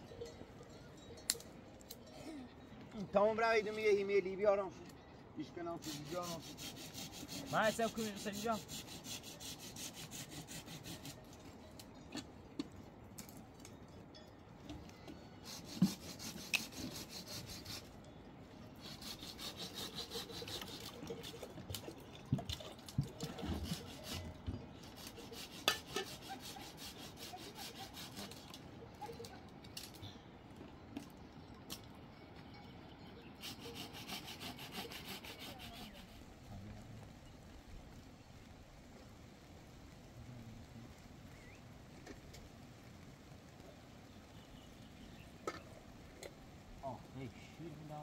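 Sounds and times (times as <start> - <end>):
rhythmic scraping strokes: 5.6 - 11.8, 15.4 - 21.9, 23.2 - 29.9, 33.4 - 36.3.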